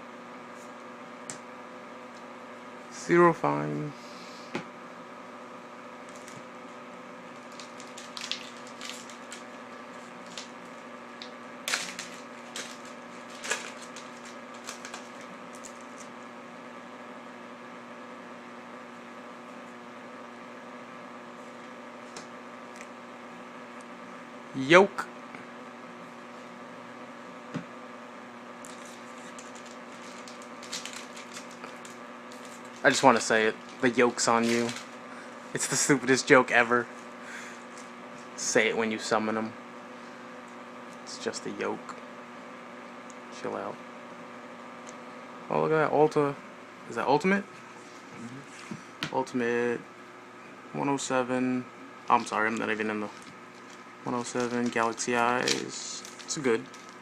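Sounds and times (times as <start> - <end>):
steady low hum: 0.0 - 57.0
cards clicking and crinkling: 7.4 - 9.6, 10.2 - 10.6, 11.2 - 16.1, 28.7 - 35.0, 53.1 - 57.0.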